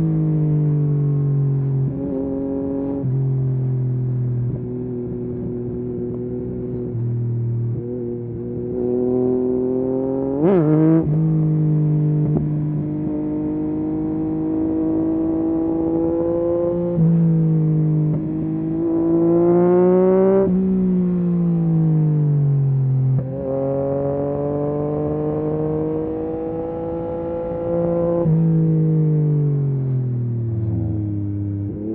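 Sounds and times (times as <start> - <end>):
motorcycle engine revving: 4.6 - 29.7.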